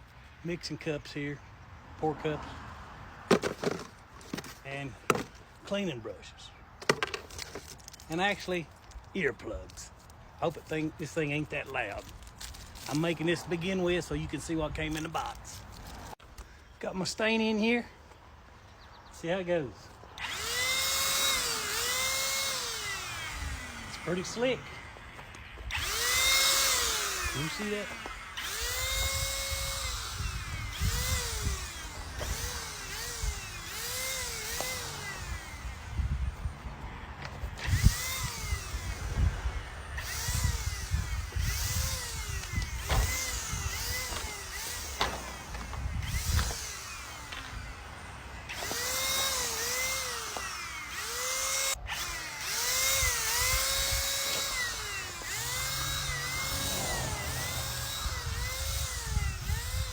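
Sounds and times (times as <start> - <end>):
paint sprayer motor whine: 20.1 - 59.9.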